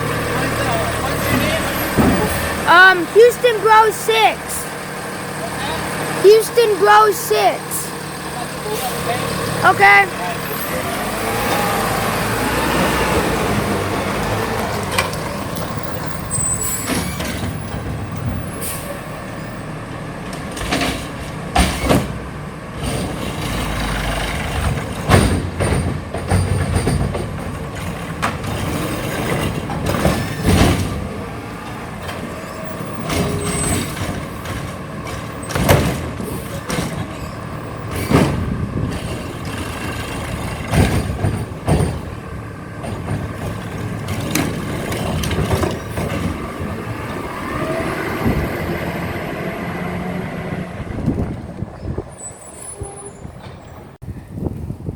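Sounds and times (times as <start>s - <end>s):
garbage truck diesel engine running: 0.0s - 52.5s
sharp clanks and bangs: 1.3s - 4.3s, 20.3s - 31.2s, 32.0s - 46.8s.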